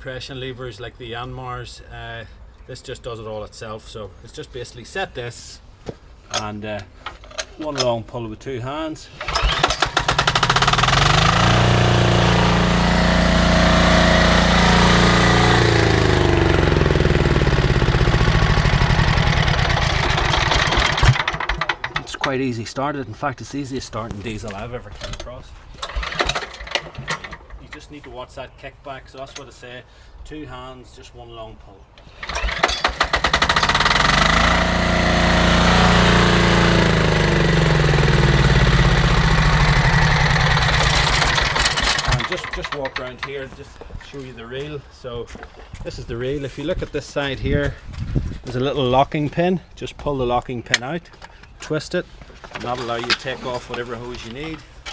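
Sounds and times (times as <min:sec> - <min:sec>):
diesel engine starting and running: 0:09.2 - 0:22.4, 0:25.8 - 0:27.8, 0:32.0 - 0:43.4.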